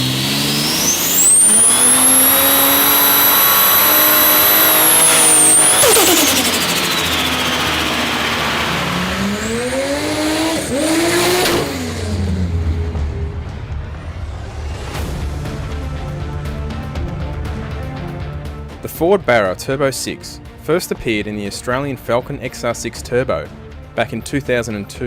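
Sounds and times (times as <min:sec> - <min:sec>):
high turbo whistle: 0:00.0 - 0:10.8
car engine revving: 0:00.0 - 0:14.3
sharp rush of air: 0:00.6 - 0:09.7.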